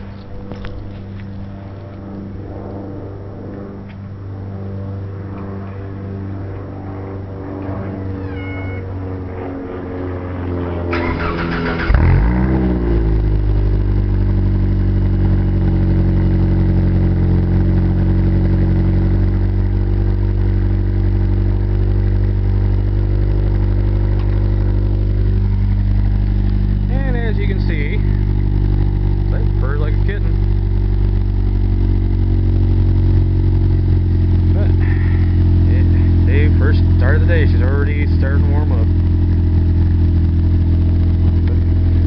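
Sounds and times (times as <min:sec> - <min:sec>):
loud car engine idling: 0:00.0 - 0:42.0
starter cranking: 0:11.0 - 0:12.0.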